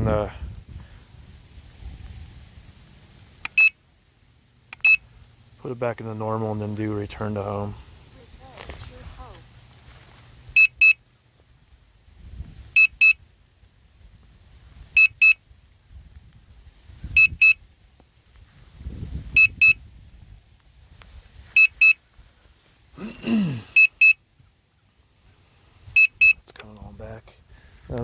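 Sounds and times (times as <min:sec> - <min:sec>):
remote controller beeping: 0:03.5 - 0:03.8, 0:04.7 - 0:05.0, 0:10.6 - 0:11.0.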